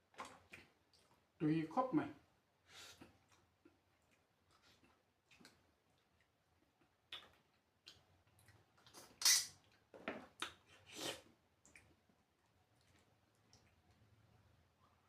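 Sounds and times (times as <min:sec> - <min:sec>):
mouth eating noises: 0:02.8 - 0:12.0.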